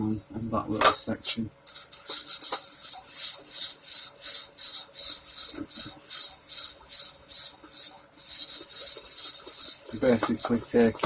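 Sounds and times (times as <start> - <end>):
sandpaper rubbing on metal frets: 1.7 - 11.0.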